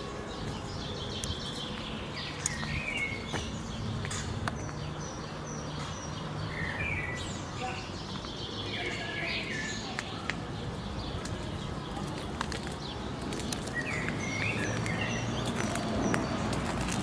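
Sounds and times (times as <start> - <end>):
low city hum: 0.0 - 17.0
small birds chirping: 0.0 - 17.0.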